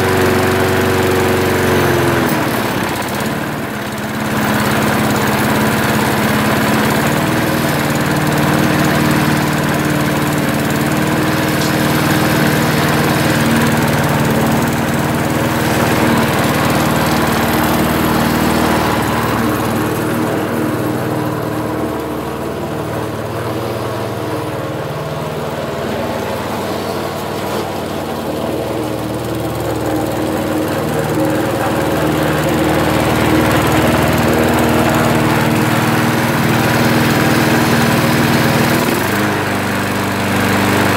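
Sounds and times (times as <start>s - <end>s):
lawnmower engine running: 0.0s - 40.9s.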